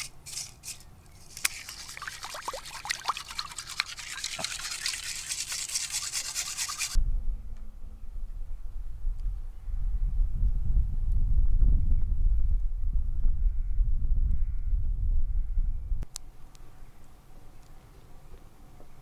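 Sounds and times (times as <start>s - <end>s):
gravel and water swirled in pan: 0.3s - 7.0s
water dripping and splashing: 1.2s - 7.0s
wind rumble on microphone: 7.0s - 16.9s.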